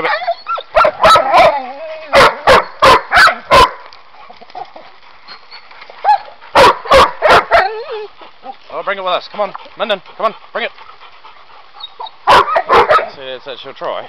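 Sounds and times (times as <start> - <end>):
dog barking: 0.8 - 3.9, 6.0 - 7.8, 12.2 - 13.2.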